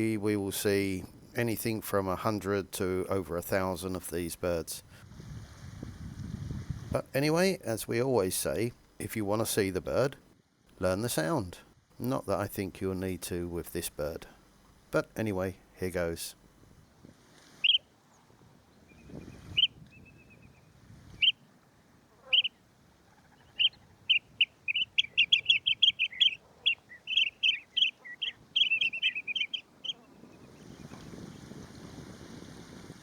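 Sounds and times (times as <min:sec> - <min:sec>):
plover calling: 0:17.6 - 0:17.9, 0:22.1 - 0:30.5.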